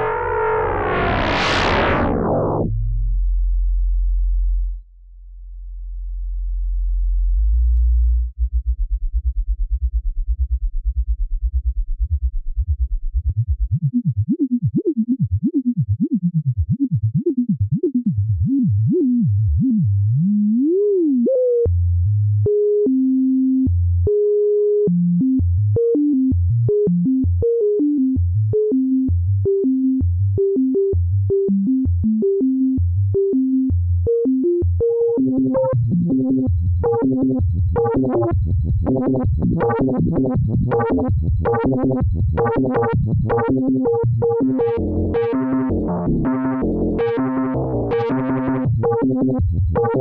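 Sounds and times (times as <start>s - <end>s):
synthesizer pitch sweeps and notes: 0.0s - 2.8s, 34.1s - 50.0s.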